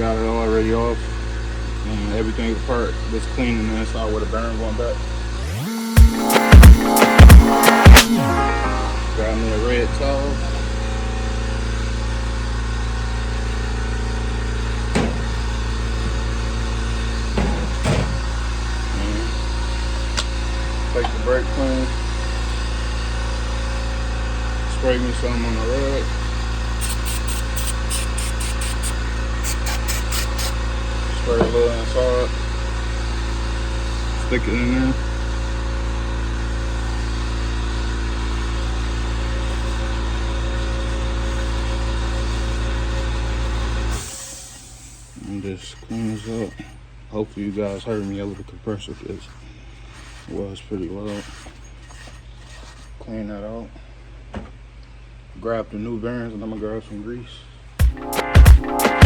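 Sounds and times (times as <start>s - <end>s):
air compressor running: 0.0s - 45.5s.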